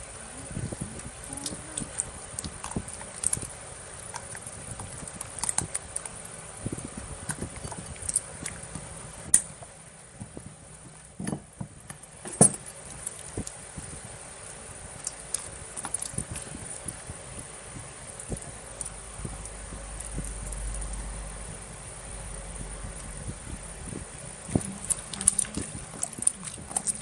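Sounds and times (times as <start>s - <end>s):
slime sticky clicks and crackles: 15.0s - 17.0s.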